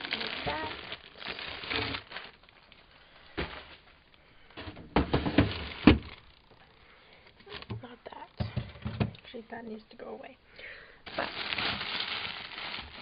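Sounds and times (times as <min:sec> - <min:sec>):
packages rustling: 0:00.0 - 0:06.7, 0:11.0 - 0:13.0
food containers clunking: 0:04.5 - 0:06.2.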